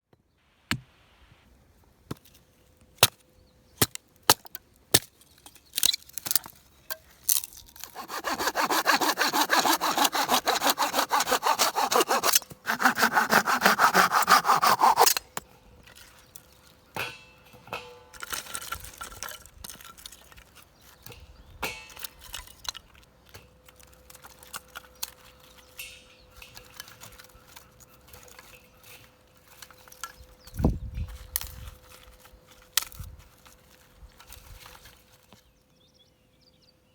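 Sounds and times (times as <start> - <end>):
hand saw cutting wood: 7.8 - 15.4.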